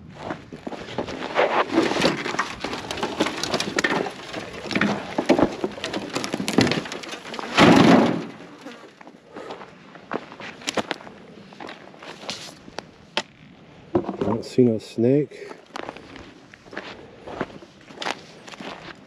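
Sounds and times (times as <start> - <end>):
twigs crackling and snapping: 1.9 - 9.1, 10.6 - 13.3.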